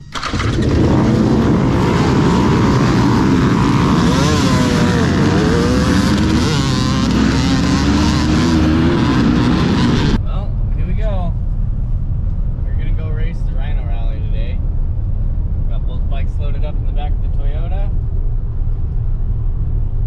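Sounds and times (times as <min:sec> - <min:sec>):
dirt bike engines revving: 0:00.2 - 0:10.2.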